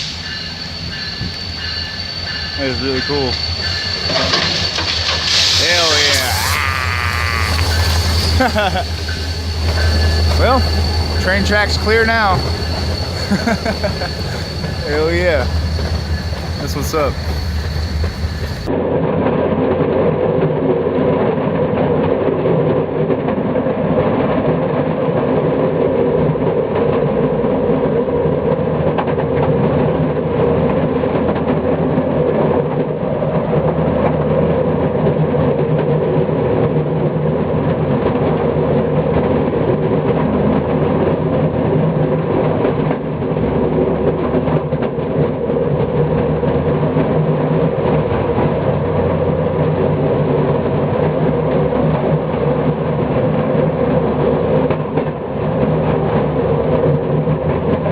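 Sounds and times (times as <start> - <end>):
train running along track: 0.0 - 57.9.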